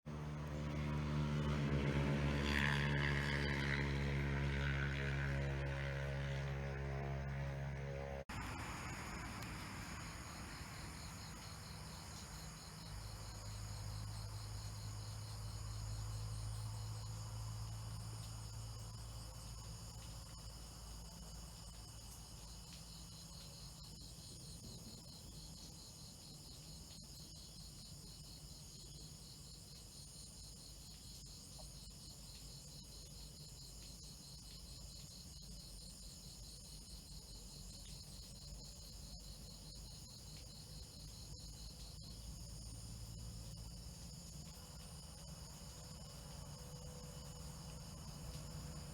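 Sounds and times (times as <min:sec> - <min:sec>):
crickets trilling: 0:08.3 - 0:48.9.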